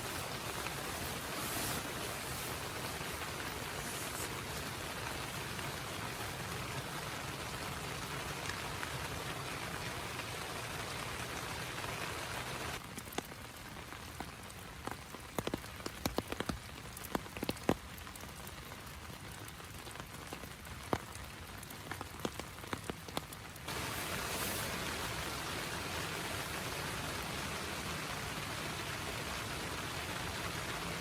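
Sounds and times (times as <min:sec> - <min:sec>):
heavy rain hiss: 0:00.0 - 0:12.9, 0:20.8 - 0:31.0
raindrops tapping on a surface: 0:00.0 - 0:31.0.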